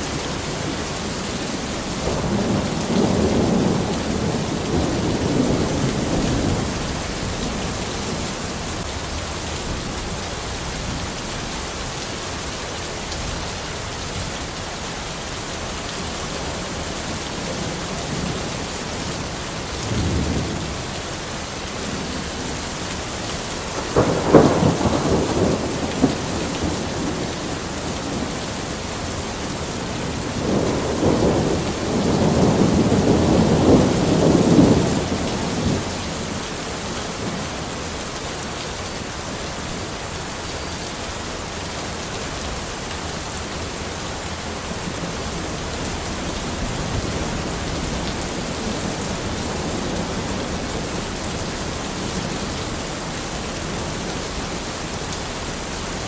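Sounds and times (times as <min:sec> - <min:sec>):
heavy rain falling: 0:00.0 - 0:56.0
thunder rumble: 0:23.8 - 0:36.4.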